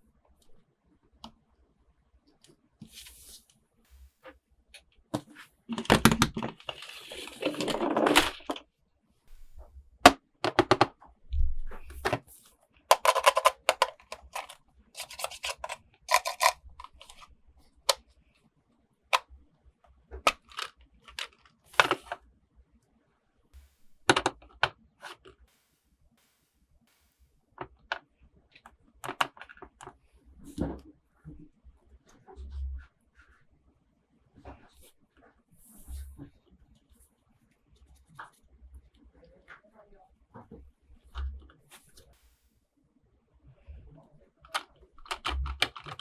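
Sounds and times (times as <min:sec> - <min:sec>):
plastic parts clicking and tapping: 0:04.8 - 0:08.6, 0:10.4 - 0:11.0, 0:12.9 - 0:17.3, 0:20.2 - 0:22.2, 0:28.6 - 0:30.0, 0:44.4 - 0:46.0
plastic packaging rustling: 0:12.9 - 0:17.2.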